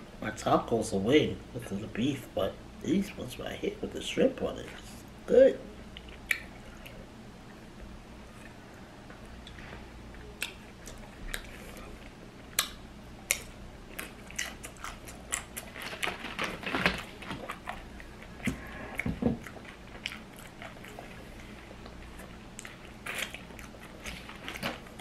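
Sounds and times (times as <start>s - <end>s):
chewing crunchy chip: 10.4s - 25.0s.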